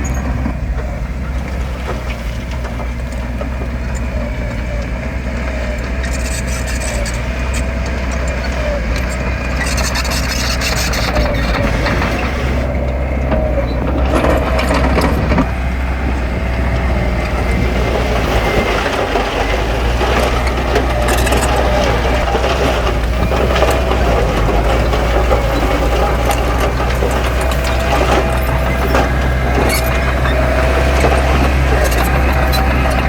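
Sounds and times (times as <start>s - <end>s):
diesel engine running: 0.0s - 33.0s
stone and earth crunching: 0.0s - 33.0s.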